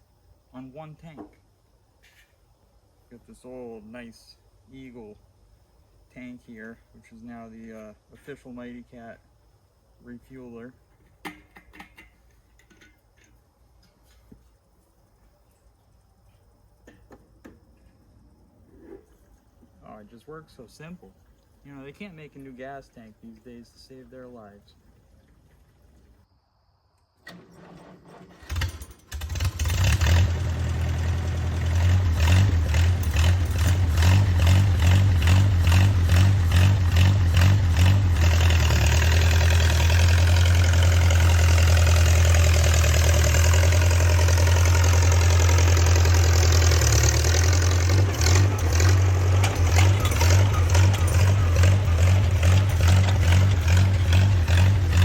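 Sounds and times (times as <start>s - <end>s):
bulldozer engine running: 27.3s - 55.0s.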